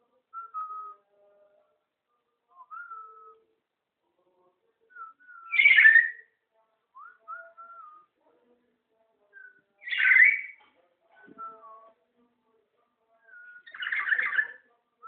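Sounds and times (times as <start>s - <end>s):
parrot squawks: 5.5s - 6.2s, 9.8s - 10.6s, 13.4s - 14.6s.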